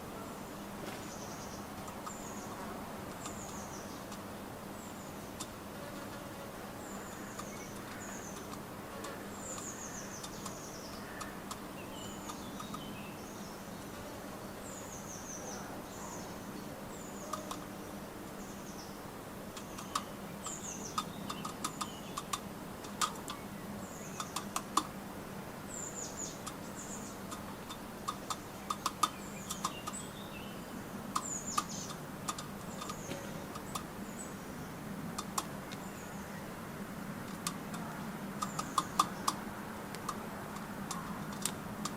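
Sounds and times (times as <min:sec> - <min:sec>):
songbirds calling: 0:00.0 - 0:41.9
birds pecking at nuts: 0:00.8 - 0:14.1, 0:16.6 - 0:41.9.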